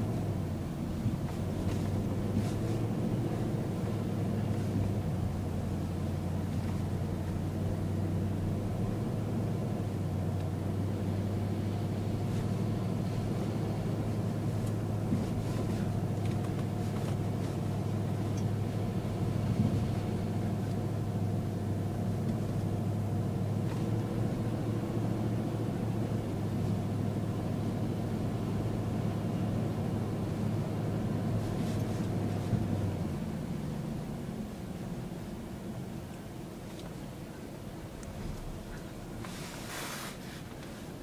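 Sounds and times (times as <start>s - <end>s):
car engine droning: 0.0s - 41.0s.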